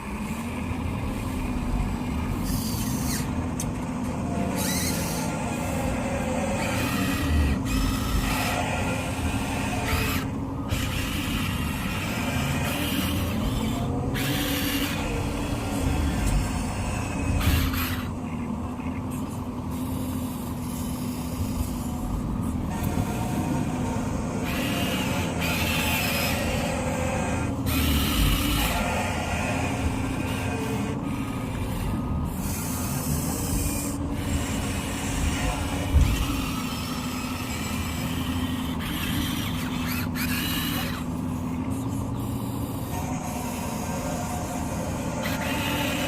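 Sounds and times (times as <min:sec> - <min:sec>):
electric motors whirring: 0:00.0 - 0:46.0
steady hum: 0:00.0 - 0:46.0.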